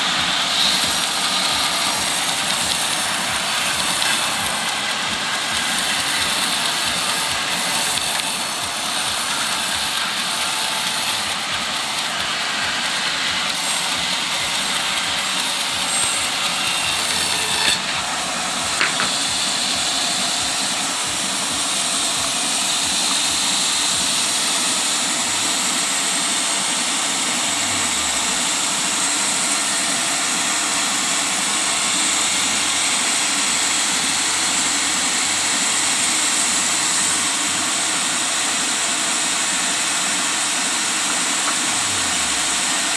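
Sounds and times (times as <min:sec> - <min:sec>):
circular sawmill sawing wood: 0:00.0 - 0:42.9.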